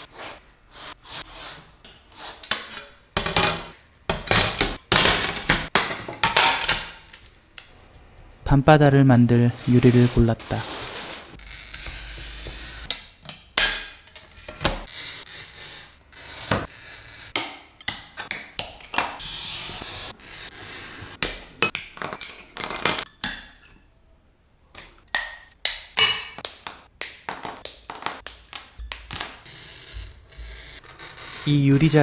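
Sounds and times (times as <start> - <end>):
glass cutter scratching: 0.0 - 3.0, 9.3 - 21.7, 28.2 - 32.0
glass pieces clinking: 21.6 - 23.9, 27.2 - 29.4.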